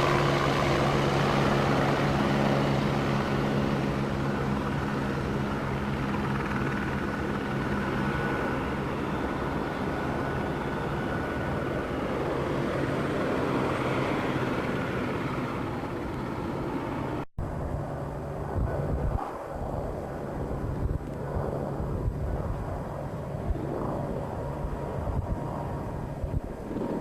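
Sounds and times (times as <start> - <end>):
helicopter rotor and turbine: 0.0 - 27.0.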